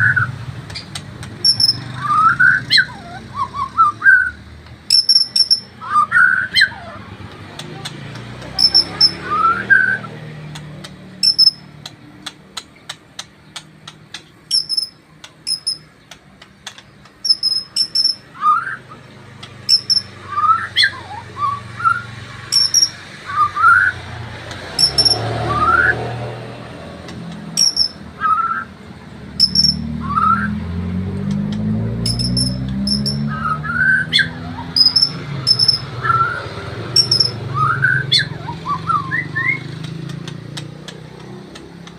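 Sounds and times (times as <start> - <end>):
sharp bird clicks: 0.0 - 3.0, 3.6 - 9.8, 10.4 - 21.0, 21.8 - 26.0, 26.8 - 28.7, 29.3 - 30.4, 31.1 - 41.9
bird whistling song: 0.0 - 7.0, 8.6 - 10.2, 11.2 - 11.7, 14.5 - 15.9, 17.2 - 24.1, 24.8 - 26.1, 27.6 - 28.8, 29.4 - 30.6, 31.9 - 39.9.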